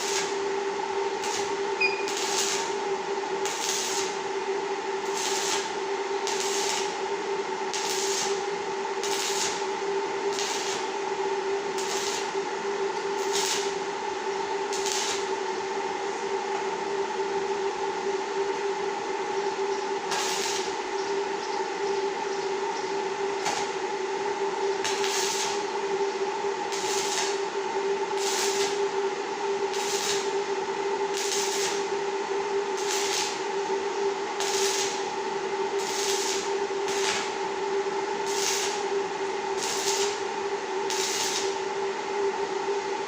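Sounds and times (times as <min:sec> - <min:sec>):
machine hum with two tones: 0:00.0 - 0:43.0
steady hiss: 0:32.6 - 0:33.5, 0:34.3 - 0:35.1, 0:38.1 - 0:41.6.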